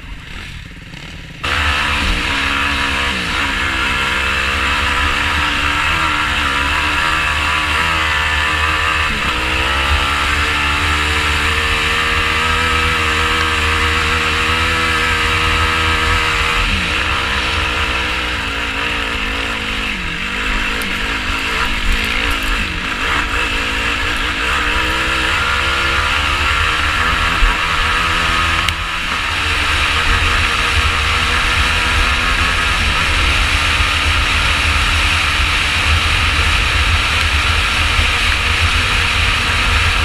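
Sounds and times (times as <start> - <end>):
quad engine revving: 0.0 - 40.0.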